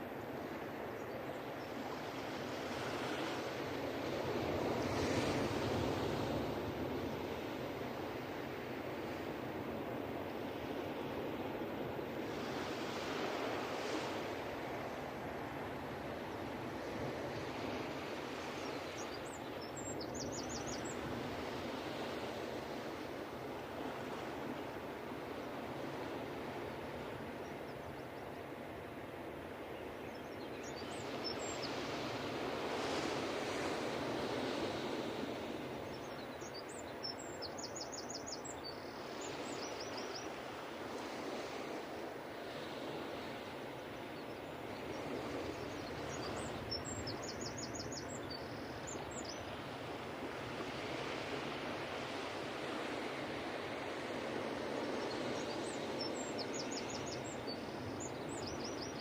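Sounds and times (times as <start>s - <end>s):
ocean waves on a beach: 0.0s - 59.0s.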